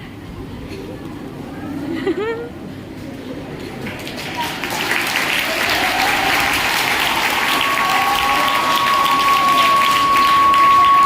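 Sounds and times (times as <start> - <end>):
audience applauding: 3.8 - 11.0
steady high tone: 7.8 - 11.0.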